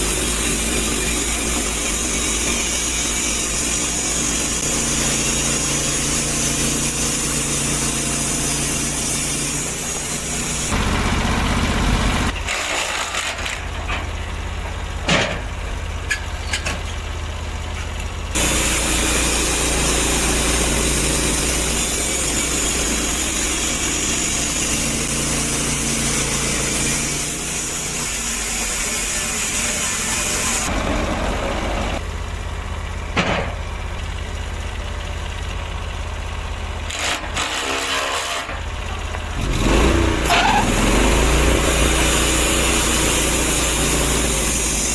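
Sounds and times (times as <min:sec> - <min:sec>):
saw cutting through log: 0:00.0 - 0:13.8, 0:18.3 - 0:32.0, 0:36.9 - 0:44.9
sawmill engine running: 0:00.0 - 0:44.9
sharp knocks: 0:33.2 - 0:33.6.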